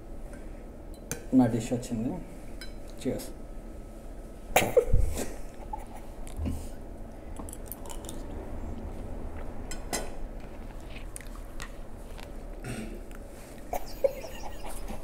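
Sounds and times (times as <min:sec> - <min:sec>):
person chewing food: 0:07.3 - 0:13.7.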